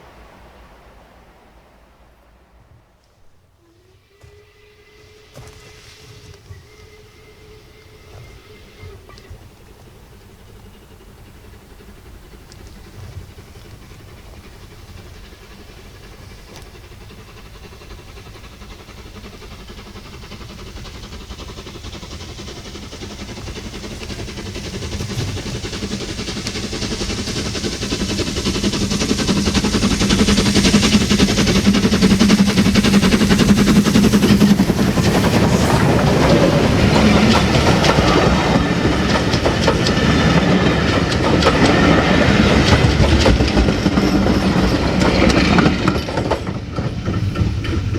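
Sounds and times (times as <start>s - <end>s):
steam train approaching: 0.0s - 47.9s
train wheels clattering on rails: 4.2s - 47.9s.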